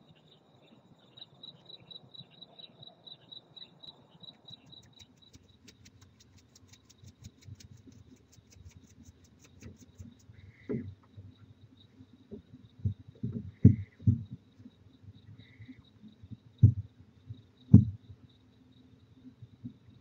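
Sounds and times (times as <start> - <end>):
crickets chirping: 0.0 - 20.0
dry ticks: 4.2 - 10.7
faint low knocks: 16.3 - 18.1.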